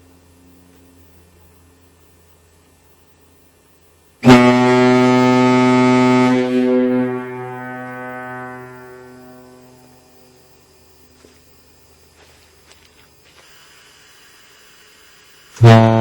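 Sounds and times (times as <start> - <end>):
deep ship's horn blast: 4.2 - 10.4, 15.6 - 16.0.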